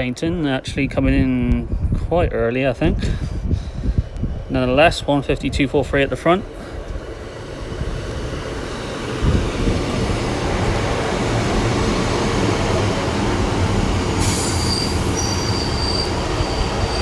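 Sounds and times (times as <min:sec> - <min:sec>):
diesel engine rumble: 0:00.0 - 0:17.0
train wheel noise: 0:05.6 - 0:17.0
high-pitched brake squeal: 0:12.8 - 0:17.0.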